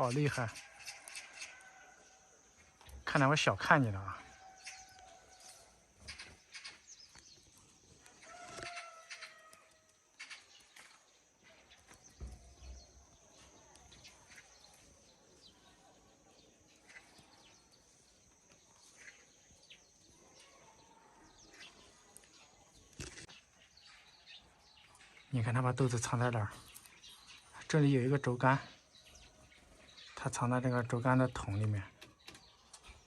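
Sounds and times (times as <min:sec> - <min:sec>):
bird pecking at bean pods: 0:00.1 - 0:01.8, 0:04.6 - 0:15.0, 0:21.3 - 0:24.2, 0:26.5 - 0:27.4.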